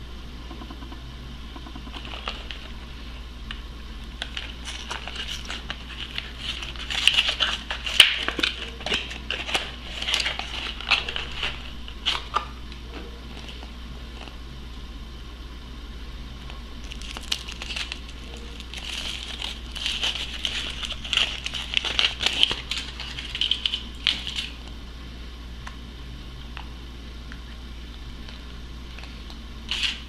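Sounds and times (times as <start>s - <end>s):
foil wrapper crinkling: 4.2s - 12.5s, 16.8s - 24.6s, 29.0s - 30.0s.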